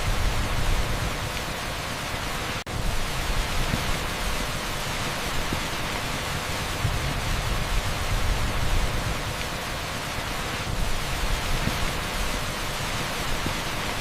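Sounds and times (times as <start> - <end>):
heavy rain on asphalt: 0.0 - 14.0.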